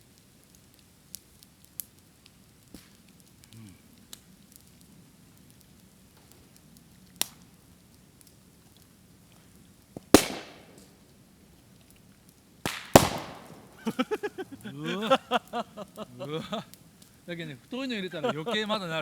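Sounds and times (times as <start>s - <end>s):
bamboo cracking in a fire: 0.0s - 19.0s
bamboo bursting with loud bangs: 10.0s - 11.0s, 12.6s - 13.9s.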